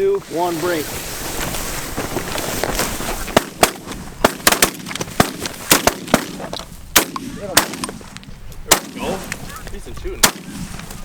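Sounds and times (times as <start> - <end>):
shotgun shots: 3.4 - 8.1, 8.7 - 9.3, 10.2 - 10.9.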